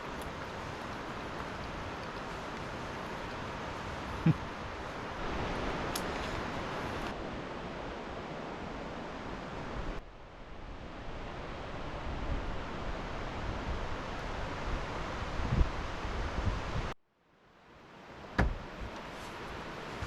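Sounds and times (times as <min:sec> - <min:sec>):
steady outdoor rushing noise: 0:00.0 - 0:20.0.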